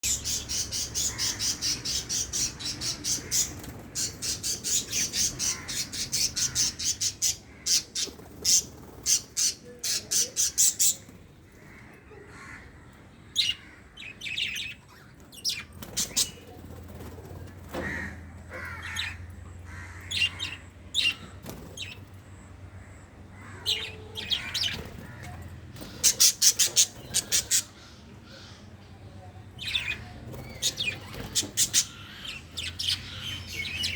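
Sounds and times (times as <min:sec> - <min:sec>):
budgerigars chirping: 0:00.0 - 0:11.1, 0:25.8 - 0:28.6, 0:29.6 - 0:33.9
budgerigars squawking and chattering: 0:00.0 - 0:28.8, 0:29.6 - 0:33.9.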